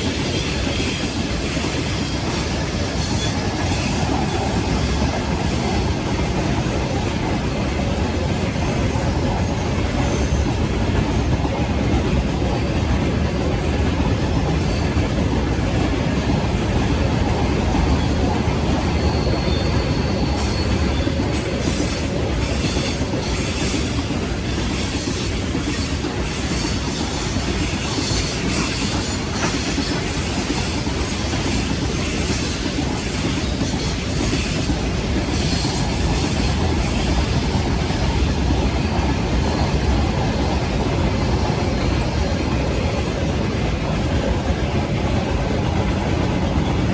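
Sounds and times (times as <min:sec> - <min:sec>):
freight train wheels rumbling: 0:00.0 - 0:46.9
metallic wheel squeals: 0:18.1 - 0:24.0.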